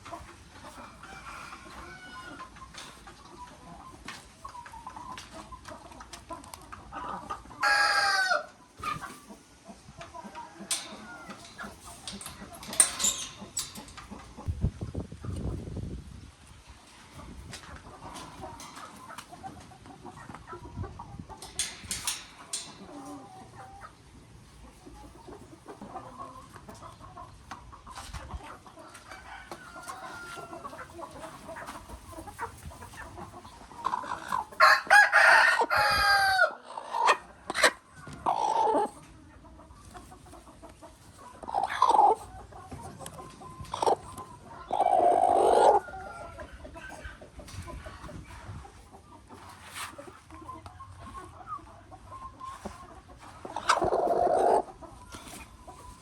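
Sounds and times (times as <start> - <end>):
chickens clucking: 0.0 - 56.0
rooster crowing: 7.6 - 8.5, 34.6 - 36.6.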